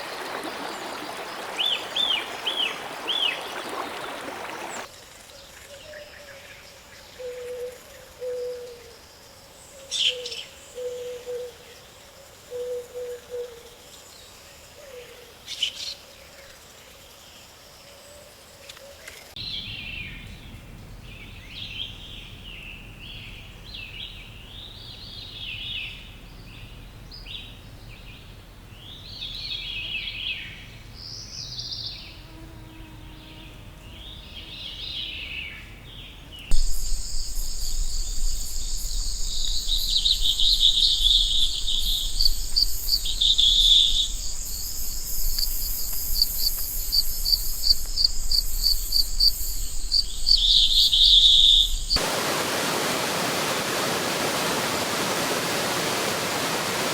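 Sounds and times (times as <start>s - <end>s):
insect chorus: 36.5s - 52.8s.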